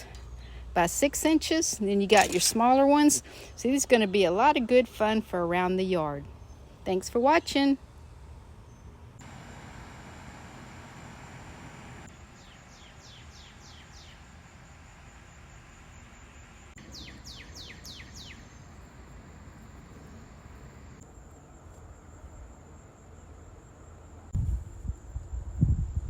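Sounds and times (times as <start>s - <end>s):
small bird singing: 12.1s - 18.9s.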